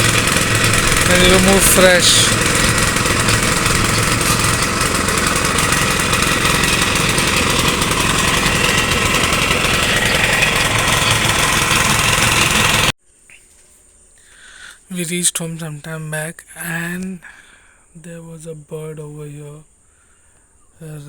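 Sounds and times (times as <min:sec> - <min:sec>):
blender motor running: 0:00.0 - 0:12.9.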